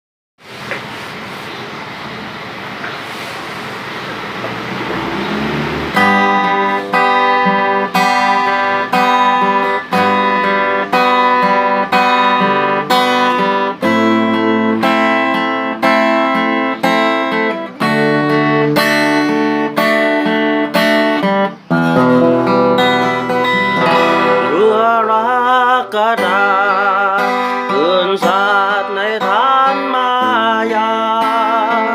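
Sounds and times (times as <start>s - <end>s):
acoustic guitar chords: 3.5s - 31.9s
wavering melody line: 4.6s - 17.4s, 18.0s - 25.0s.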